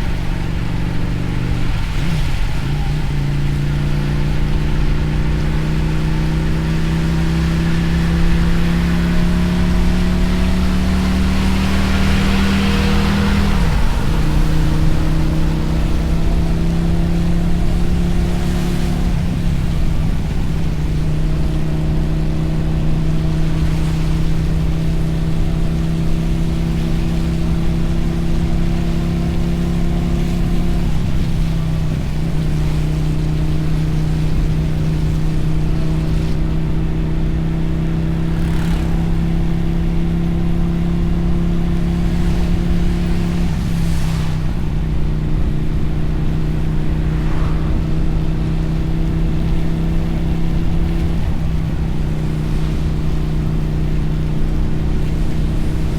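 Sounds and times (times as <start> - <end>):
motorcycle engine running: 0.0 - 55.9
wind and tyre noise: 0.0 - 55.9
passing whooshes: 38.3 - 55.9.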